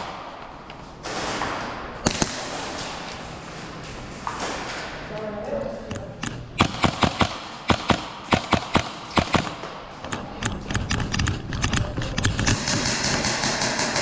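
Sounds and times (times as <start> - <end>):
airsoft gunfire cracks: 1.1 - 2.6, 6.6 - 9.6.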